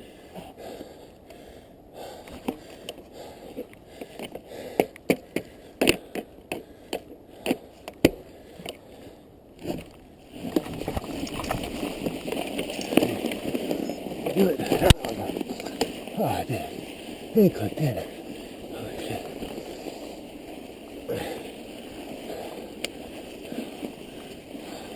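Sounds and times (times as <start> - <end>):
bike crunching through snow: 9.6 - 24.9.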